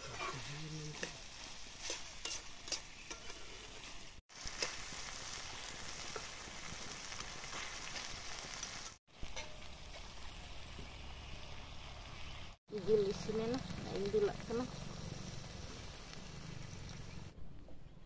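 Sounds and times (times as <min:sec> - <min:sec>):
curry sizzling in a pan: 0:00.0 - 0:17.3
metal spatula stirring and clicking: 0:00.2 - 0:05.0, 0:09.2 - 0:10.2.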